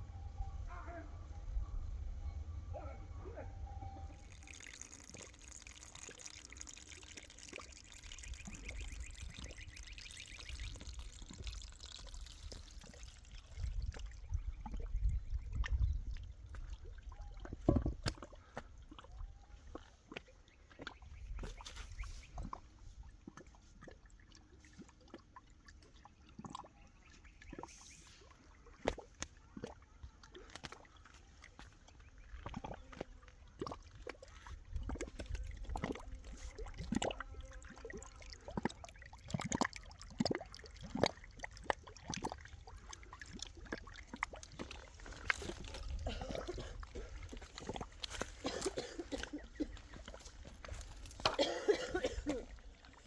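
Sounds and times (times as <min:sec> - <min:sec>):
low rumble: 0:00.0 - 0:04.3
liquid pouring and trickling: 0:03.7 - 0:53.0.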